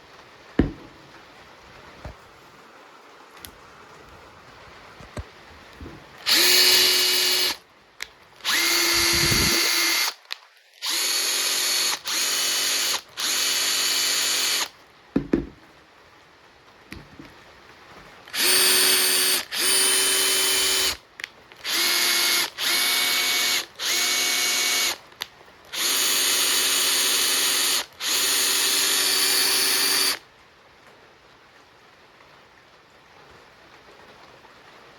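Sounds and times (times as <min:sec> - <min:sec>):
single knock: 0:00.6 - 0:00.9, 0:15.2 - 0:15.6
impact driver whining: 0:06.2 - 0:07.6, 0:08.4 - 0:10.1, 0:10.8 - 0:14.7, 0:18.4 - 0:21.0, 0:21.7 - 0:25.0, 0:25.8 - 0:30.2.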